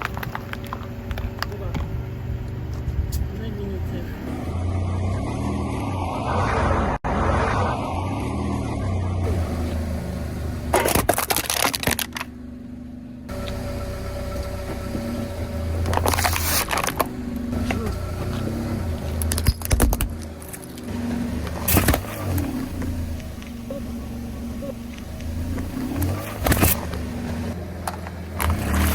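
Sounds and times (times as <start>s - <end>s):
tyres crunching brittle objects: 0.0s - 2.1s, 10.7s - 12.3s, 15.8s - 23.5s
car engine low hum: 0.0s - 28.9s.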